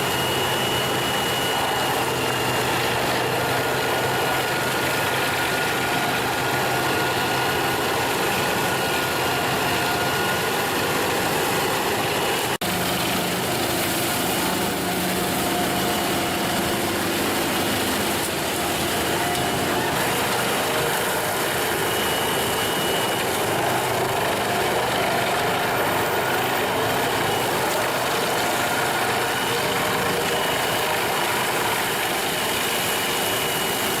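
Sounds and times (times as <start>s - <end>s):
wood chipper engine running: 0.0s - 34.0s.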